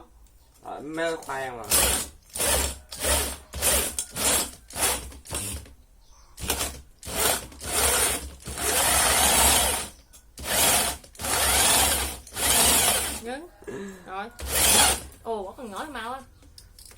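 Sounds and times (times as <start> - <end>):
electric drill running: 1.7 - 5.7, 6.4 - 13.2, 14.4 - 15.1.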